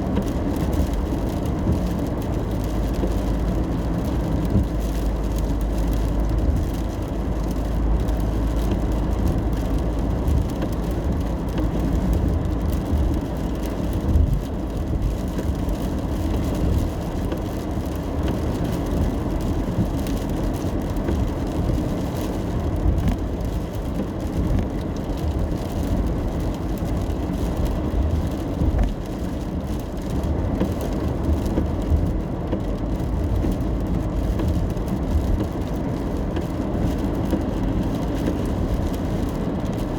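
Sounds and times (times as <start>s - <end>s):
rain on a car: 0.0s - 39.9s
tyres and engine rumble: 0.0s - 39.9s.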